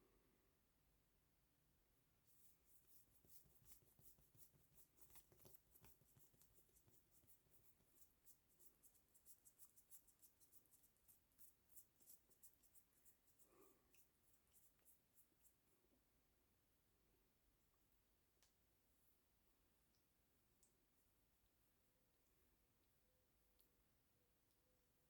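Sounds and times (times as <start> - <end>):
fingertips rubbing skin: 2.3 - 15.6.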